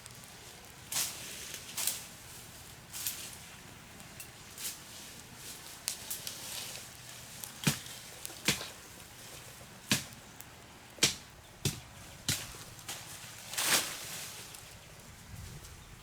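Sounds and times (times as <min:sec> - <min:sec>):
tool chopping wood: 0:07.6 - 0:08.7, 0:09.9 - 0:10.2, 0:11.0 - 0:12.7.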